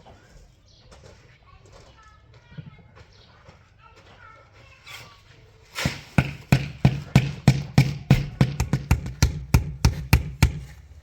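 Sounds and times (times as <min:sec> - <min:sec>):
sharp loud knocks with thuds: 0:05.8 - 0:10.8.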